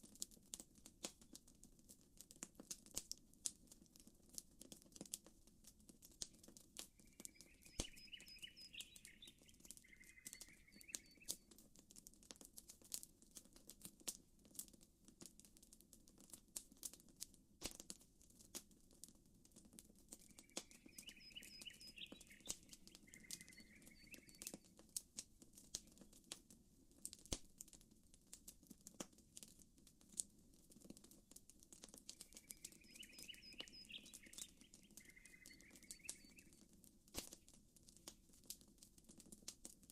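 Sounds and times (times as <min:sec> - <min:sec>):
campfire crackling and popping: 0:00.0 - 0:39.9
bird chirping: 0:07.0 - 0:11.5, 0:20.2 - 0:24.7, 0:32.1 - 0:36.6.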